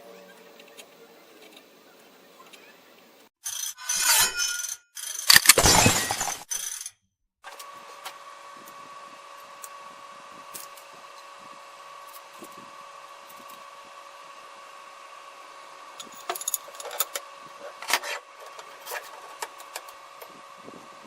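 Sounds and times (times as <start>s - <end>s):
clatter of tools and metal parts: 3.4s - 6.9s, 16.0s - 20.4s.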